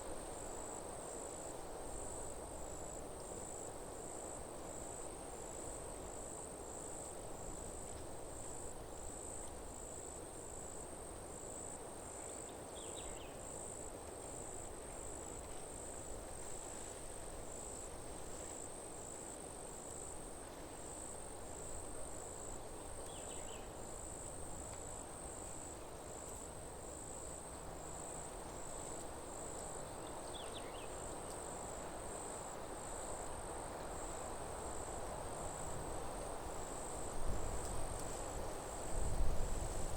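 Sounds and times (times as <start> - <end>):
insect chirping: 8.4 - 16.0, 20.8 - 39.9
wind in the trees: 33.4 - 39.9.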